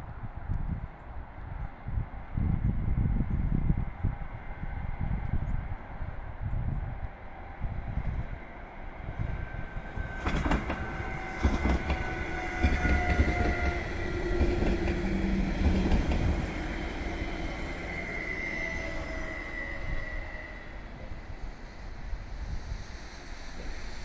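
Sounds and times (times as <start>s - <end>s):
train high whine: 2.9s - 24.0s
train cars rumbling past: 7.0s - 24.0s
train wheel clacks: 10.1s - 16.6s.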